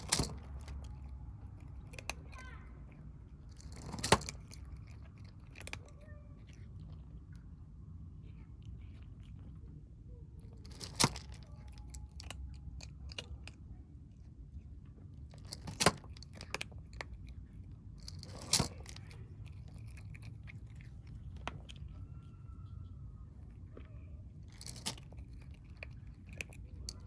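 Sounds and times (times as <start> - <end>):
kittens chewing clicks: 0.0 - 27.0.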